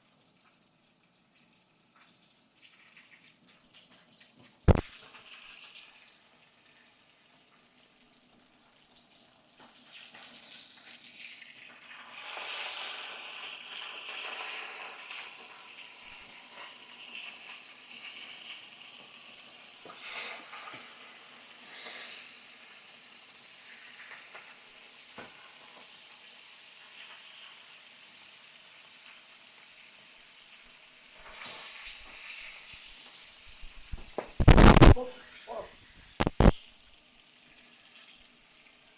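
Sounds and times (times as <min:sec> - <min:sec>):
fish frying in hot oil: 0:00.0 - 0:35.1, 0:36.1 - 0:38.9.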